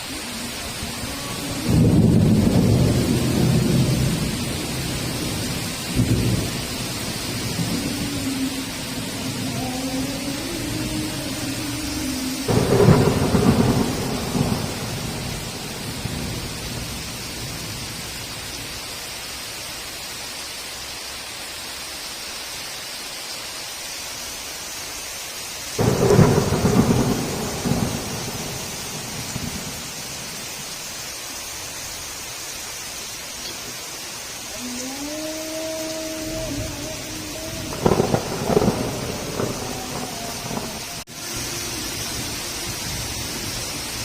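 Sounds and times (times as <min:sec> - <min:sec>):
heavy rain: 0:00.0 - 0:44.0
thunder claps rumbling: 0:00.2 - 0:18.1, 0:25.8 - 0:30.7, 0:35.1 - 0:44.0.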